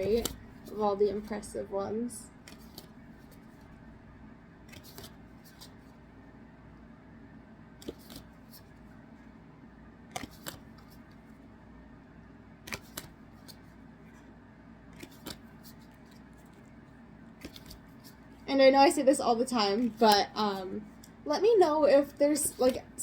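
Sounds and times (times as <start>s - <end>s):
trading cards clicking: 0.0s - 0.4s, 2.4s - 3.4s, 4.7s - 5.8s, 7.8s - 8.3s, 10.1s - 11.0s, 12.6s - 13.7s, 14.9s - 16.6s, 17.4s - 18.2s
low room hum: 0.0s - 23.0s.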